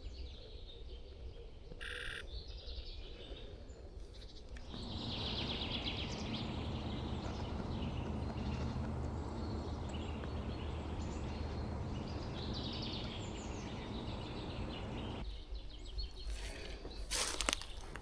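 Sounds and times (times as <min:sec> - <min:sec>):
background rumble: 0:04.6 - 0:15.2
small birds chirping: 0:04.6 - 0:15.2.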